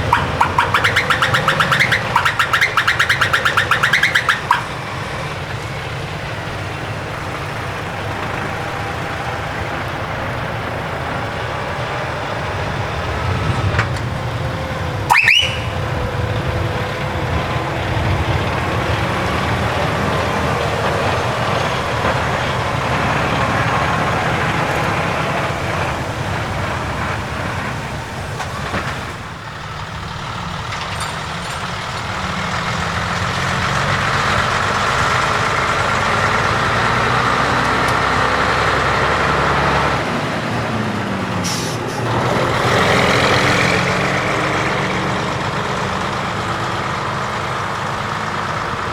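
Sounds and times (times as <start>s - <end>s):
trucks passing: 0.0s - 48.9s.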